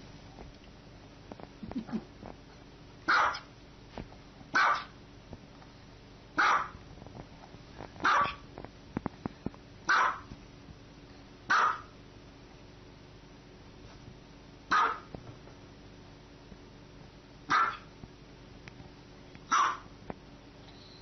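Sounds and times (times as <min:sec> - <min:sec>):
small dog barking: 0:03.1 - 0:03.5, 0:04.5 - 0:05.0, 0:06.4 - 0:06.8, 0:08.0 - 0:08.4, 0:09.9 - 0:10.3, 0:11.5 - 0:12.0, 0:14.7 - 0:15.1, 0:17.5 - 0:17.9, 0:19.5 - 0:19.9.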